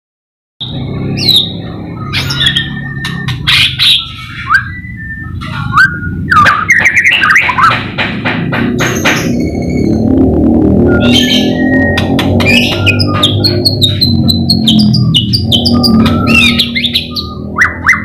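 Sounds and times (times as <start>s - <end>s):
bird singing with clicks: 2.2s - 7.8s.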